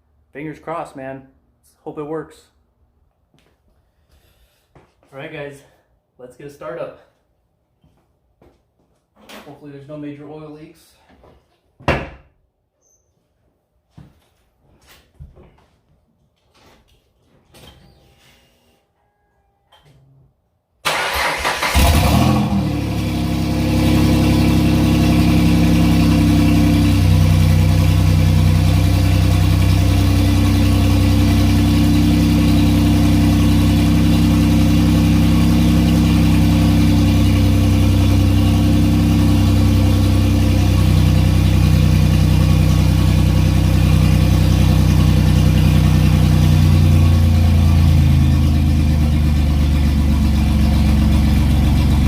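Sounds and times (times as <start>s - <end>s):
car engine cranking and starting: 20.8s - 52.0s
car engine idling: 20.9s - 52.0s.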